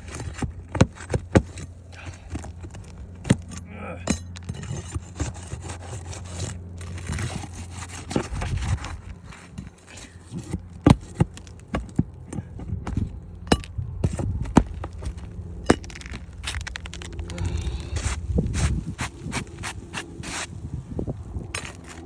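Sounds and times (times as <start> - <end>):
low steady hum: 0.0 - 22.0
scraping on a shingle roof: 0.0 - 22.0.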